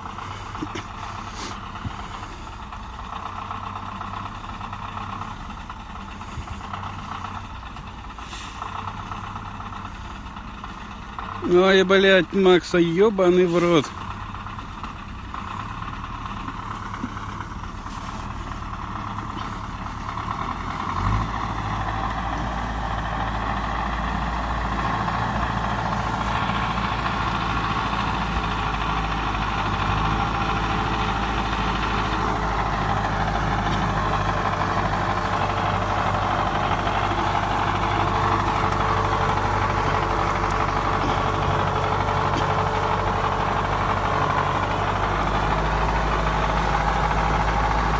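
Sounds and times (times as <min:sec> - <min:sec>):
truck engine running: 0:00.0 - 0:47.9.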